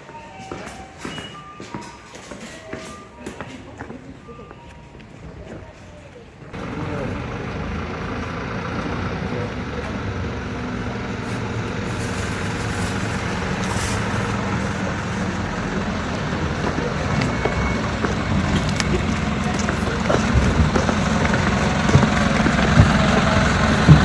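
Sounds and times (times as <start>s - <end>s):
bus engine running: 6.5s - 24.0s.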